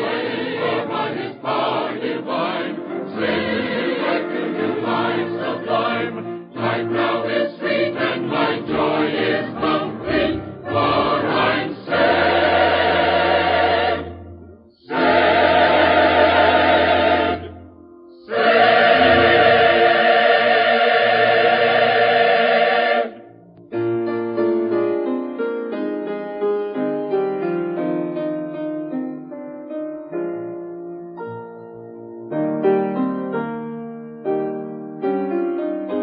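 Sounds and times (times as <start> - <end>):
gospel choir singing: 0.0 - 17.6, 18.2 - 23.3.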